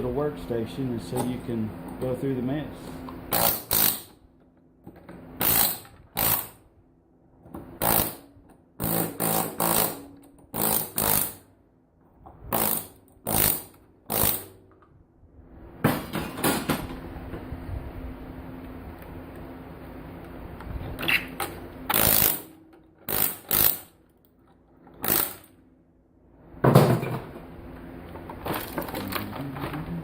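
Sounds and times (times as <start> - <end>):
pneumatic air chisel bursts: 3.3 - 4.2, 5.4 - 6.6, 7.8 - 11.5, 12.5 - 14.6, 21.1 - 24.0, 25.0 - 25.6.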